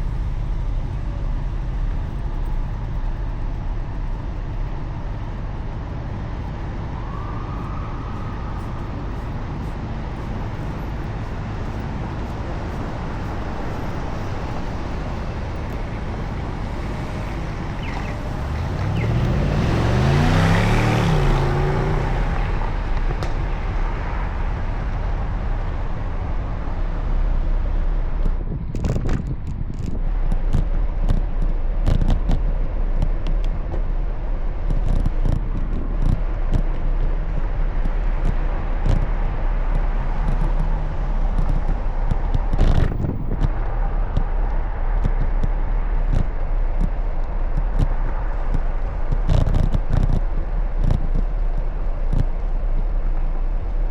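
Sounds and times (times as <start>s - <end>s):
low rumbling: 0.0s - 53.9s
traffic: 0.0s - 53.9s
wind noise: 0.0s - 53.9s
motor vehicle passing close: 14.1s - 26.6s.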